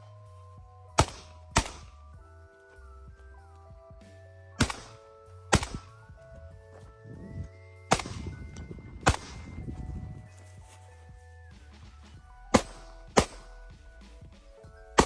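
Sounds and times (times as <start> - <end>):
background music: 0.0 - 15.0
pistol shots: 1.0 - 2.0, 4.6 - 6.0, 7.9 - 8.3, 9.0 - 9.6, 12.5 - 13.6.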